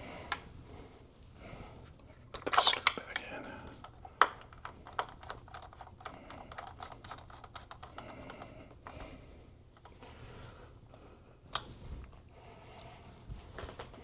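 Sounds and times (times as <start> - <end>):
clicks and taps of handling small parts: 2.4 - 9.1.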